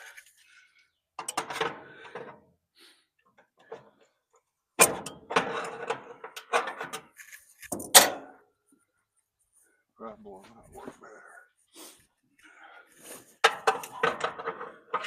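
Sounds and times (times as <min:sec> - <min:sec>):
metal clanking and rattling: 0:04.8 - 0:07.1, 0:13.4 - 0:15.0.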